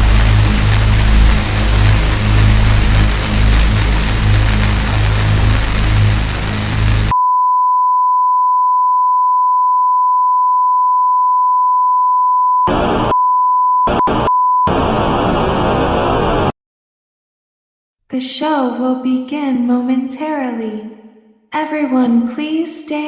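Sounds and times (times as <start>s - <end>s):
harsh noise bursts: 0.0s - 7.1s, 12.7s - 13.2s, 13.9s - 16.6s
noisy music: 0.0s - 7.1s, 12.7s - 13.2s, 13.9s - 16.5s
steady electronic beep: 13.8s - 15.2s.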